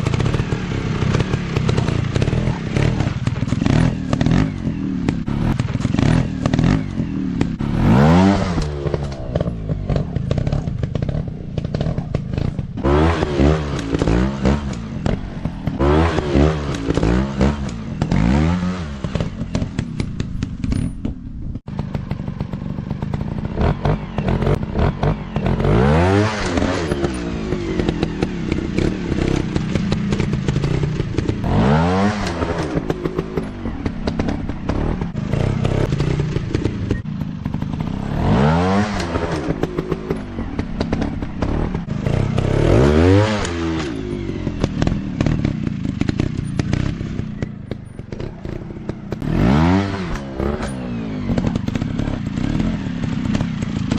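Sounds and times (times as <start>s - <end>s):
dirt bike engines revving: 0.0s - 53.9s.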